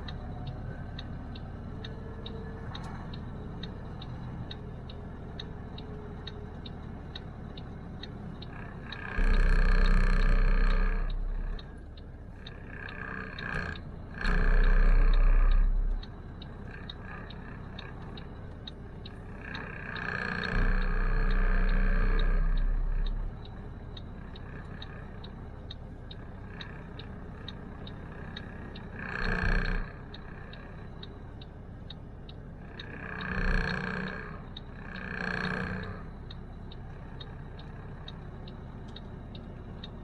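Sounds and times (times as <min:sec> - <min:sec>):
turn signal clicking: 0:00.0 - 0:40.0
loud steady drone: 0:08.8 - 0:11.8, 0:14.1 - 0:16.1, 0:19.5 - 0:23.4.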